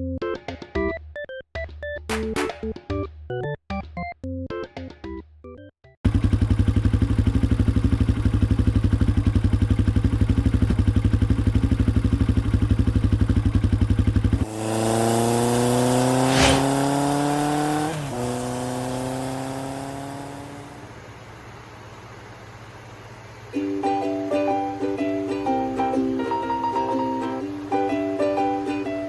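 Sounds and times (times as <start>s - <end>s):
motorcycle engine idling: 6.0s - 15.6s, 19.4s - 23.6s
motorcycle pulling away: 6.1s - 23.5s.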